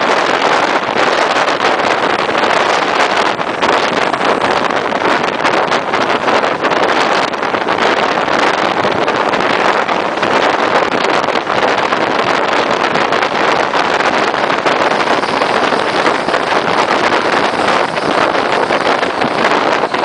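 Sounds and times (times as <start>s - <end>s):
wind rushing over microphone: 0.0s - 20.0s
train wheels on track: 13.6s - 20.0s.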